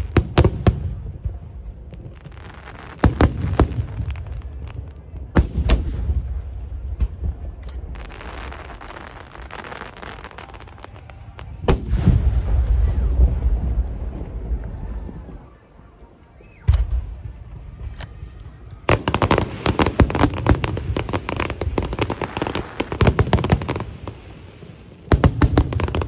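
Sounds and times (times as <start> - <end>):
fireworks crackling hiss: 0.0 - 15.4, 16.0 - 26.0
fireworks bangs: 0.0 - 26.0
deep rolling booms: 11.1 - 15.6.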